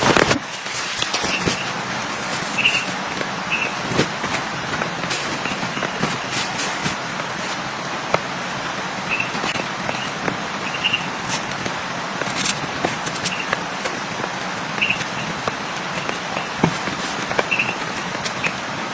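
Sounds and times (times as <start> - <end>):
heavy rain falling: 0.0 - 18.9.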